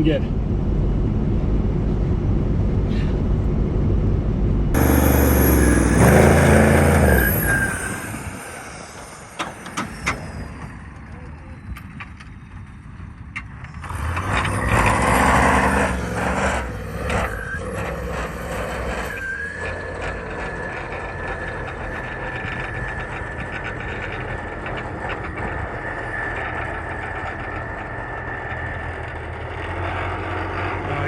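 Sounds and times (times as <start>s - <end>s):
diesel truck engine revving: 0.0s - 11.2s, 13.6s - 31.0s
thin high whine: 4.8s - 11.7s.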